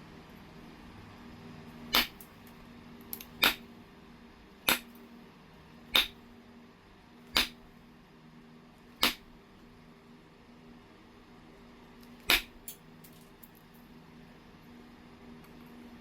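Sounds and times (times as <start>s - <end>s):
stone knapping strikes: 1.9s - 2.2s, 3.2s - 3.7s, 4.7s - 4.9s, 5.9s - 6.2s, 7.3s - 7.6s, 9.0s - 9.3s, 12.2s - 12.7s.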